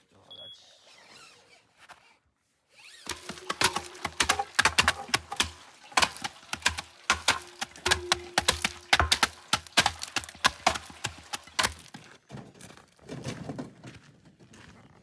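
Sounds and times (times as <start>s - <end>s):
sharp knocks and cracks: 3.1s - 12.1s.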